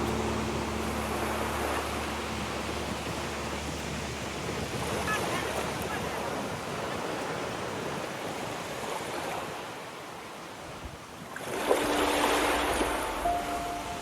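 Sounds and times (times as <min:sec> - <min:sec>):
steady tones: 0:00.0 - 0:04.8, 0:11.6 - 0:14.0
ocean surf on a beach: 0:00.0 - 0:14.0.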